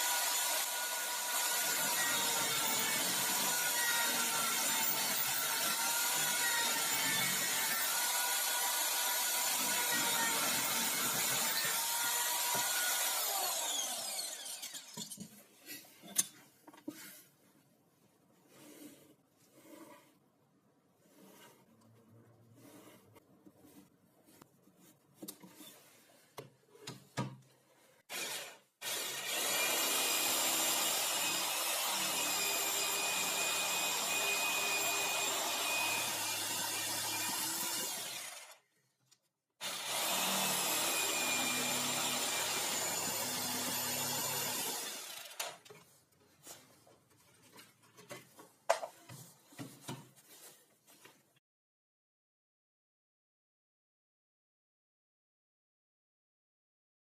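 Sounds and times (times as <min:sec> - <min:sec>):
power saw cutting wood: 0:00.0 - 0:15.1, 0:28.1 - 0:38.6, 0:39.6 - 0:45.6.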